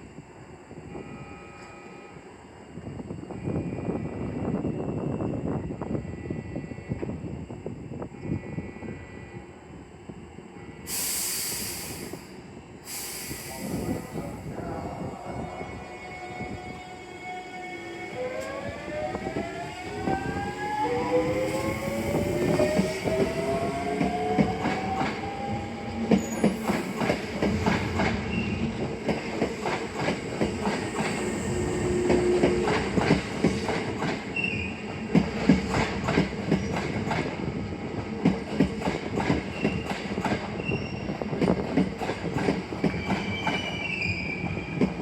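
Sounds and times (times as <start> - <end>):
train traction motor whine: 0.7 - 35.6.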